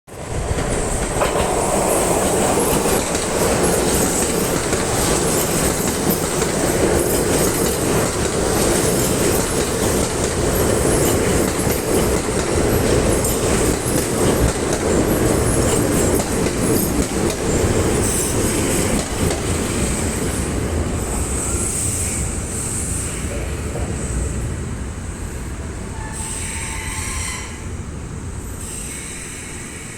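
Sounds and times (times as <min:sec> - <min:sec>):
train rail running noise: 0:00.1 - 0:29.9
high-pitched wheel squeal: 0:25.9 - 0:27.7.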